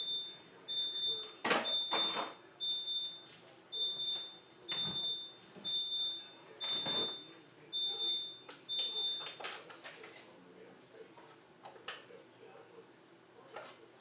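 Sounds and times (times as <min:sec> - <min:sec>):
refrigerator alarm beeping: 0:00.0 - 0:09.4.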